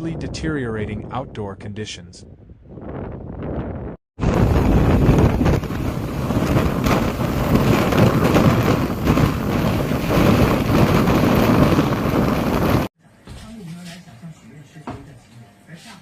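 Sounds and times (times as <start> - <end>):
blizzard wind buffeting microphone: 0.0 - 12.9.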